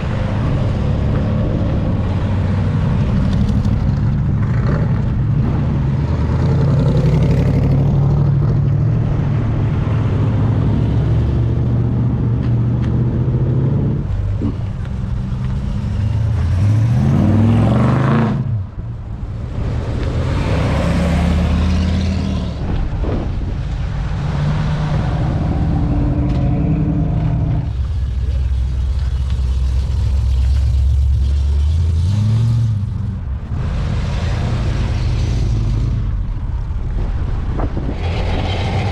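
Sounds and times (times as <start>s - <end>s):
car engine revving: 0.0s - 18.8s
car accelerating: 0.0s - 38.9s
car engines running low: 0.0s - 38.9s.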